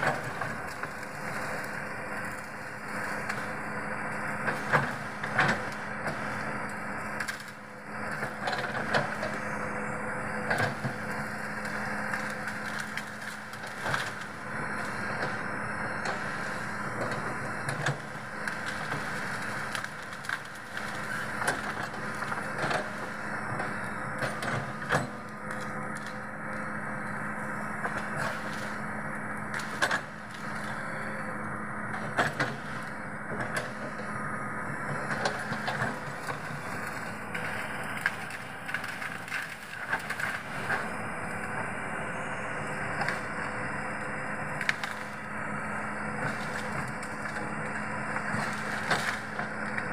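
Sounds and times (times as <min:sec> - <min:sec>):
excavator engine running: 0:00.0 - 0:49.9
wood cracking and splintering: 0:10.6 - 0:15.0, 0:16.0 - 0:26.2, 0:35.1 - 0:41.5, 0:44.5 - 0:45.2, 0:46.2 - 0:49.9.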